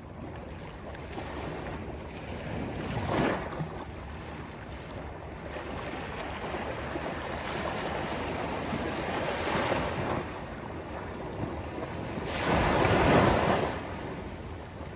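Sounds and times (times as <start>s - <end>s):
sea waves breaking on beach: 0.0s - 14.9s
wind buffeting microphone: 0.0s - 14.9s.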